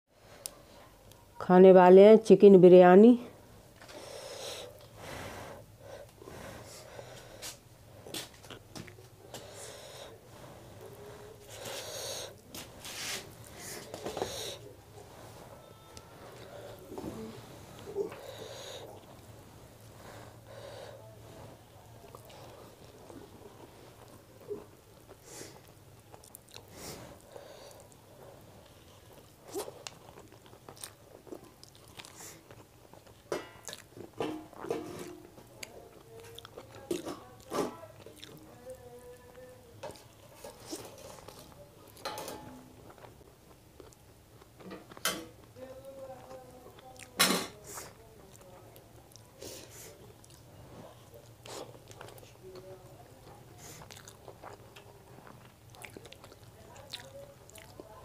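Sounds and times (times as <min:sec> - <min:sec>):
person chewing: 0:05.9 - 0:19.4, 0:22.0 - 0:34.8, 0:35.6 - 0:42.1, 0:42.8 - 0:45.5, 0:47.8 - 0:52.6, 0:53.2 - 0:58.0.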